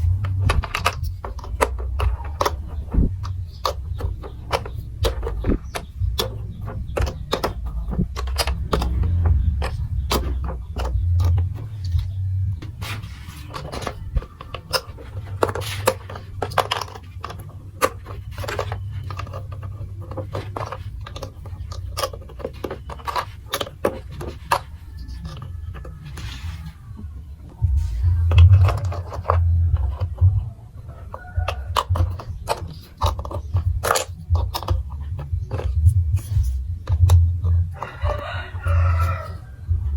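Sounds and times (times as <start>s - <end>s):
low rumble: 0.0s - 16.4s, 24.6s - 32.5s, 33.4s - 39.9s
plastic blocks clicking: 0.0s - 39.6s.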